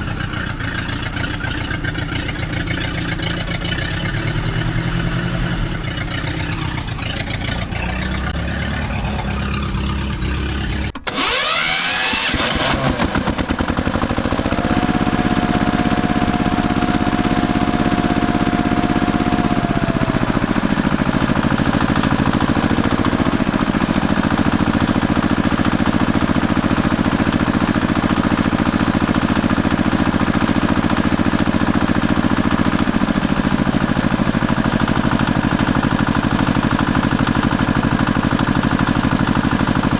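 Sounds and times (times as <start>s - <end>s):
vehicle engine running: 0.0s - 39.9s
engine starter whine: 3.1s - 39.9s
held whine: 6.4s - 25.0s.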